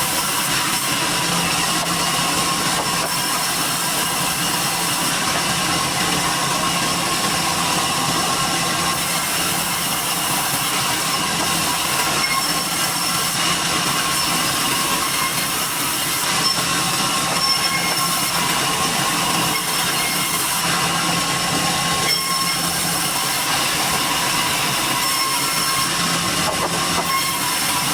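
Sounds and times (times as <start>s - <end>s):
saw cutting through log: 0.0s - 27.9s.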